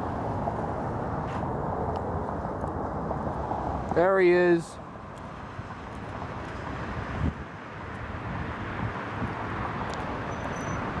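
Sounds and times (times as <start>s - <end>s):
wind on microphone: 5.6s - 11.0s.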